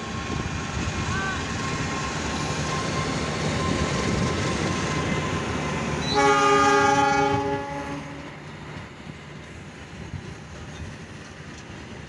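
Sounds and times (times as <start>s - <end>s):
train rumbling: 0.0s - 12.0s
locomotive horn blast: 6.0s - 8.5s.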